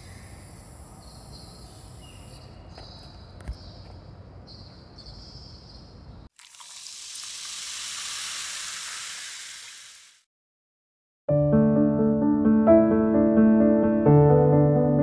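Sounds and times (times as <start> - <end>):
insects chirping: 0.0 - 6.5
hiss: 7.0 - 10.2
piano music: 11.3 - 15.0.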